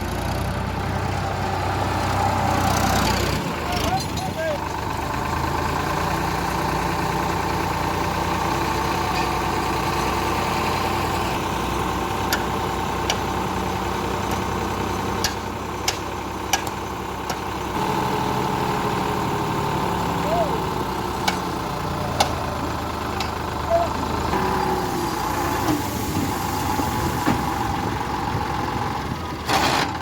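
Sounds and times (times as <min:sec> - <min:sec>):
diesel tractor engine running: 0:00.0 - 0:30.0.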